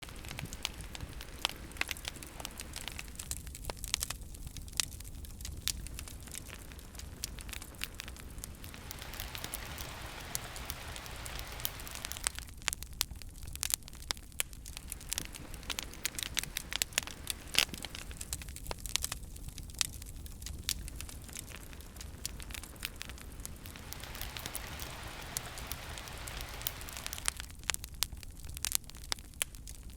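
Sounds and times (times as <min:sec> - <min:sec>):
campfire crackling and popping: 0:00.0 - 0:29.9
low rumble of flames: 0:00.0 - 0:29.9
hiss: 0:08.4 - 0:12.5, 0:14.8 - 0:18.2, 0:21.5 - 0:27.4.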